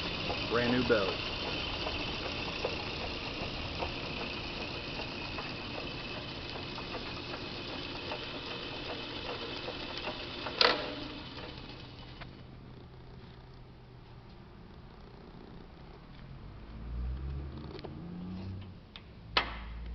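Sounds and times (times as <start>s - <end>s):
metal lathe motor humming: 0.0s - 12.4s.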